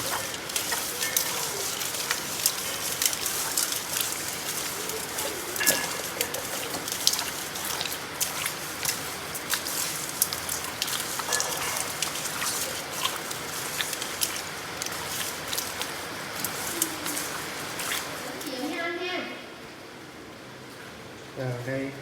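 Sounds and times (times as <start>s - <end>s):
sharp drips and clicks: 0.0s - 18.7s
rain pattering: 0.0s - 19.0s.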